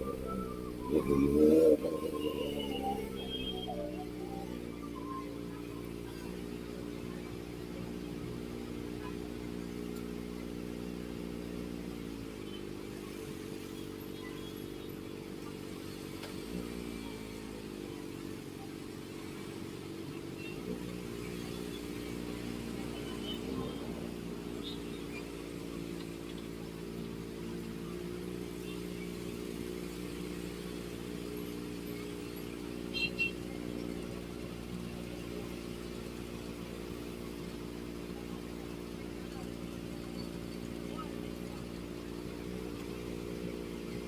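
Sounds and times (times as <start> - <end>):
motorcycle engine while riding: 0.0 - 44.0.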